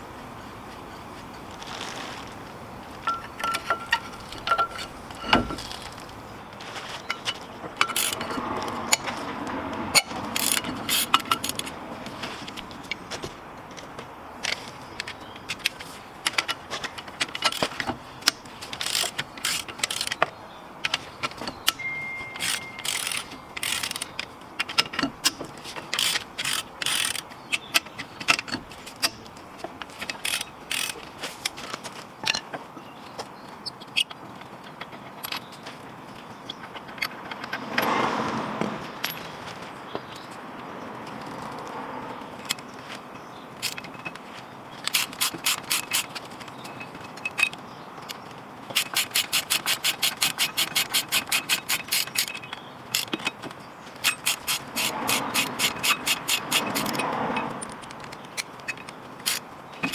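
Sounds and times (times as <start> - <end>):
hand tools clicking on metal: 2.8 - 32.5, 43.6 - 44.2, 44.8 - 59.9.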